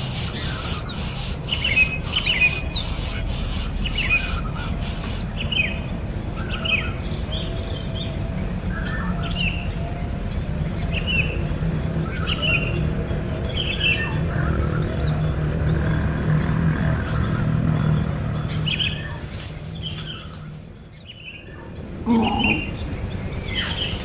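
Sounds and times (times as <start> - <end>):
bird chirping: 0.0 - 8.1, 17.1 - 24.0
high insect trill: 0.0 - 24.0.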